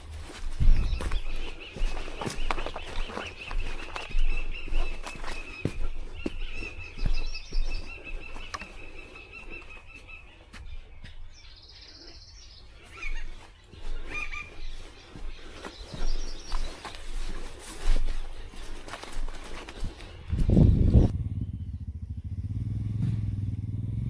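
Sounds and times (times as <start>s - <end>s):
birds calling: 0.0s - 23.3s
low wind rumble: 19.9s - 24.0s.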